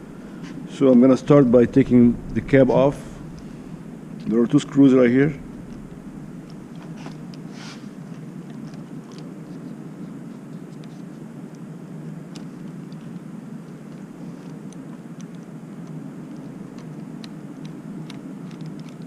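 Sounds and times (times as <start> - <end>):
steady low hum: 0.0 - 14.4.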